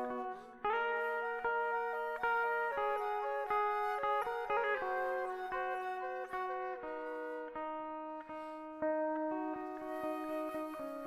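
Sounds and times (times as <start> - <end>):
rock guitar picking ringing notes: 0.0 - 11.0.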